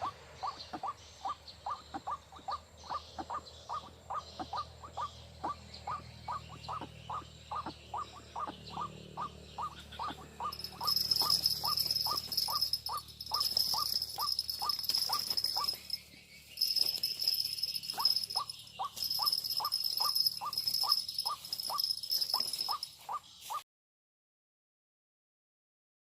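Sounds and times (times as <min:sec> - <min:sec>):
bird calling repeated notes: 0:00.0 - 0:23.6
high insect drone: 0:08.7 - 0:23.1.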